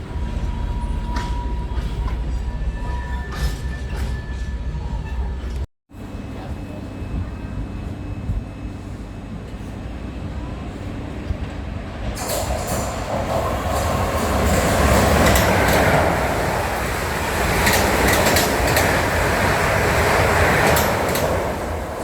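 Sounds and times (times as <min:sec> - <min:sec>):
train wheels rumbling on rails: 0:00.0 - 0:05.7, 0:06.4 - 0:22.0
wheels clicking over rails: 0:12.0 - 0:22.0.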